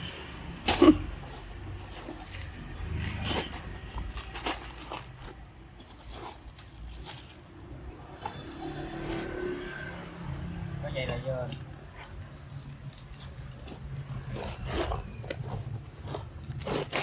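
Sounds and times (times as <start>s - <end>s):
small metal parts clinking: 0.6s - 7.6s, 11.0s - 17.0s.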